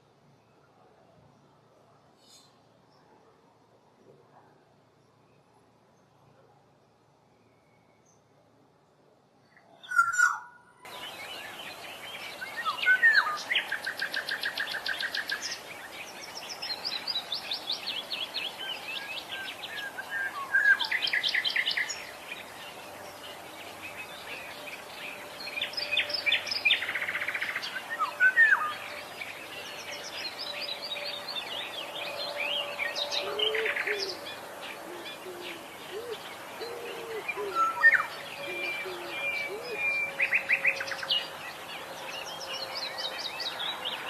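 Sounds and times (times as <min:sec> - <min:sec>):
wild birds singing and calling: 0:09.5 - 0:44.0.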